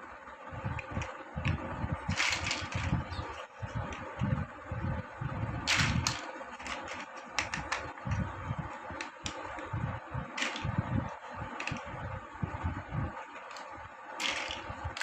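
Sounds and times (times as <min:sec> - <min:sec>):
plastic blocks clicking: 0:00.8 - 0:04.1, 0:05.7 - 0:09.7, 0:10.4 - 0:10.7, 0:11.5 - 0:11.9, 0:13.3 - 0:15.0.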